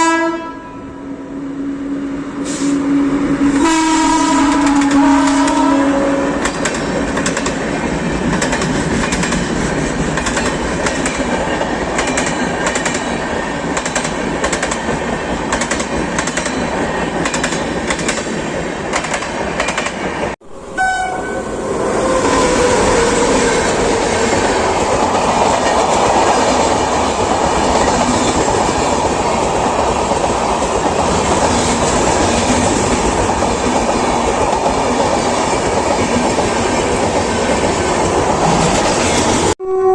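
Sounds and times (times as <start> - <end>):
train horn: 0.0 - 6.6, 20.7 - 23.8, 39.6 - 39.9
train rumbling: 0.8 - 39.9
train wheels clattering on rails: 4.0 - 5.7, 6.4 - 20.4, 22.7 - 39.6.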